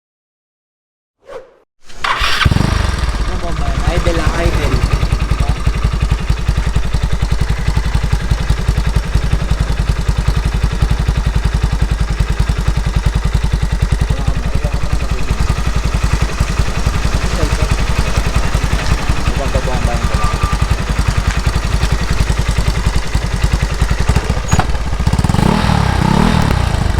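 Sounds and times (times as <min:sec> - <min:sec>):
scooter engine idling: 0:02.0 - 0:26.9.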